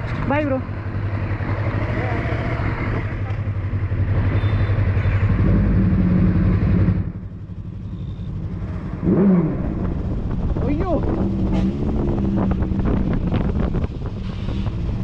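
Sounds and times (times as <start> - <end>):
motorcycle engine running: 0.0 - 15.0
wind rush over microphone: 9.5 - 15.0.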